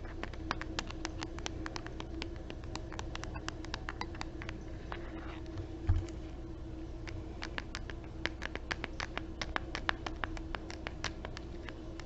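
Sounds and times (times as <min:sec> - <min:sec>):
fingers tapping hard object: 0:00.2 - 0:04.6, 0:07.1 - 0:12.0.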